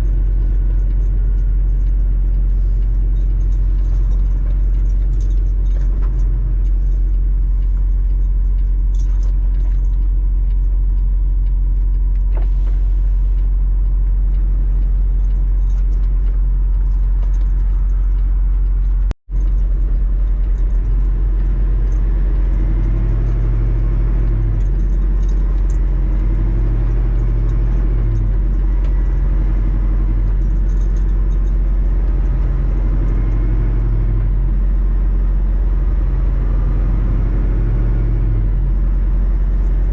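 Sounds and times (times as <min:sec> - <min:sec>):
small clicks and rattles: 0:00.0 - 0:12.4, 0:13.8 - 0:34.1
road noise: 0:00.0 - 0:39.9
truck engine drone: 0:00.0 - 0:39.9.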